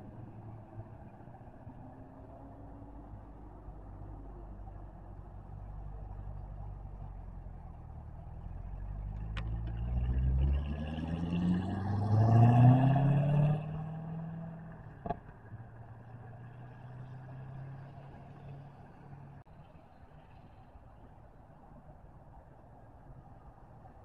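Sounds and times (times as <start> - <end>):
car engine accelerating: 8.3 - 15.2, 16.2 - 19.4.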